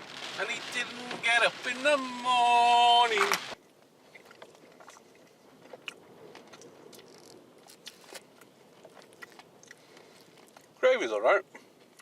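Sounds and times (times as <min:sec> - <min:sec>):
small clicks and crackles: 0:00.0 - 0:10.8
person chewing food: 0:05.6 - 0:10.8.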